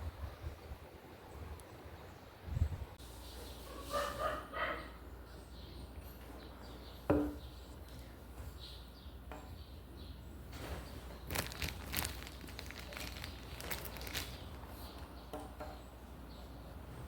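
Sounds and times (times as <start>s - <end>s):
sticks and leaves crunching: 11.3s - 15.1s.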